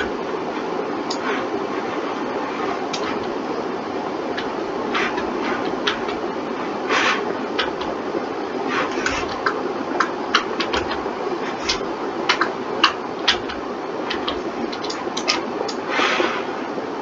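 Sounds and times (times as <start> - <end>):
steady hum: 0.0 - 17.0
keyboard and mouse clicks: 1.1 - 1.4, 2.5 - 3.4, 4.3 - 6.3, 6.9 - 8.0, 8.8 - 15.8.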